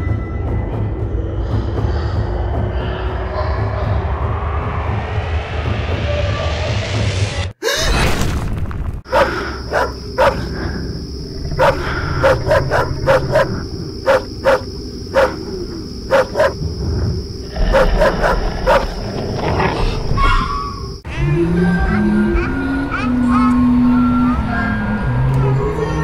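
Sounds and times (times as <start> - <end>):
low rumble: 0.0 - 7.5
dog barking: 9.1 - 10.6, 11.5 - 15.5, 16.1 - 16.6, 17.6 - 19.0.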